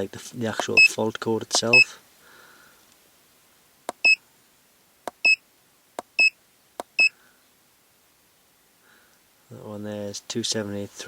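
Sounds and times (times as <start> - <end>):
button clicks: 3.9 - 4.2
short high beeps: 5.2 - 5.4, 6.2 - 6.4.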